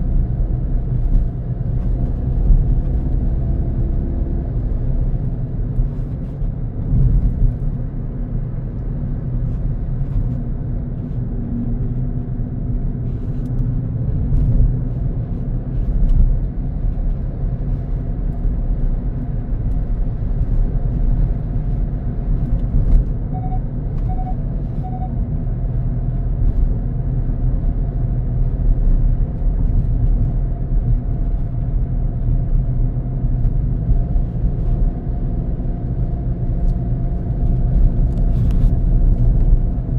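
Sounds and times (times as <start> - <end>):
car engine and road rumble: 0.0 - 39.9
short beeps: 23.3 - 25.2.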